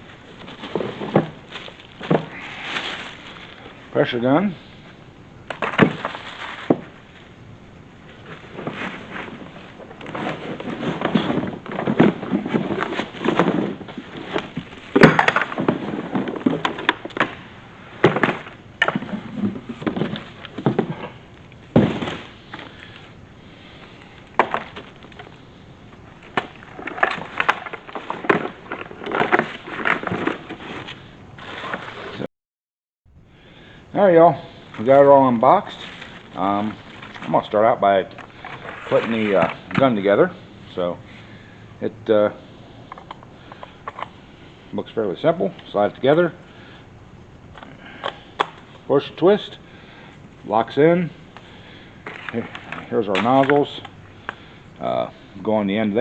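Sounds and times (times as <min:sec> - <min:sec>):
packaging rustling and crinkling: 0:00.0 - 0:03.8, 0:08.1 - 0:17.4, 0:18.0 - 0:23.1, 0:26.0 - 0:32.2, 0:34.7 - 0:40.1
parts knocking and clicking: 0:11.0 - 0:17.4.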